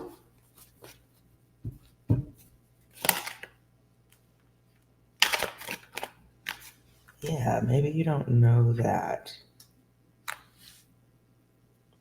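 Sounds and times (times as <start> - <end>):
cards rustling and sliding: 5.2 - 7.2, 10.3 - 10.9.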